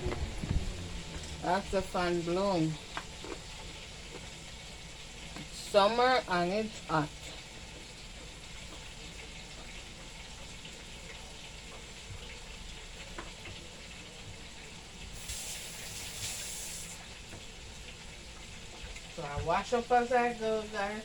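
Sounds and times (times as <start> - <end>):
electric fan running: 0.0 - 10.5
chicken sizzling in hot oil: 0.0 - 21.0
tap water running: 0.0 - 21.0.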